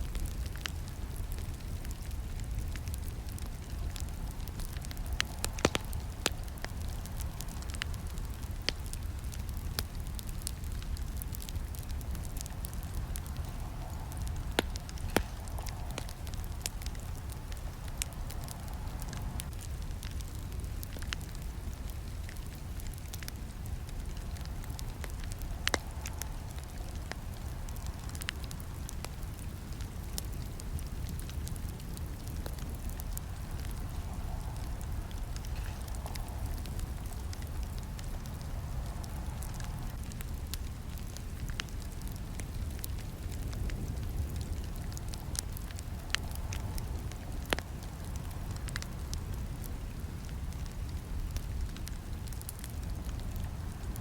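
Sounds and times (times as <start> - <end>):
burning wood crackling and snapping: 0.0 - 54.0
campfire flames rumbling: 0.0 - 54.0.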